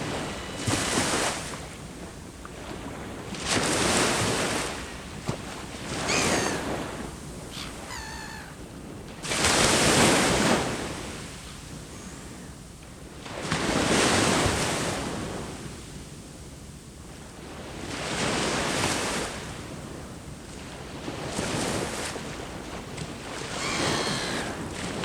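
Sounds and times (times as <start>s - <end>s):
sea waves breaking: 0.0s - 11.5s, 21.4s - 25.0s
bird calling: 5.9s - 8.6s, 23.4s - 25.0s.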